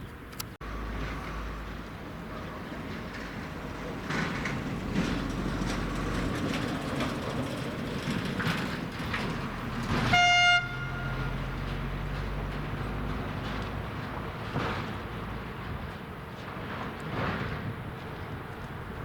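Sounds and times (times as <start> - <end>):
train rumbling: 0.6 - 19.0
train horn toot: 10.0 - 11.5.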